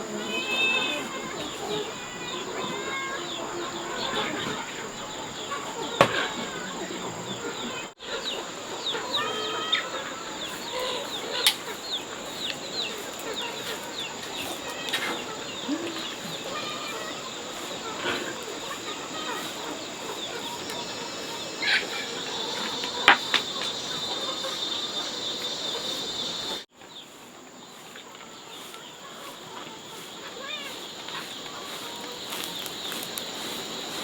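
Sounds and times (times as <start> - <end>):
birds chirping: 0.0 - 34.0
high insect drone: 0.0 - 34.0.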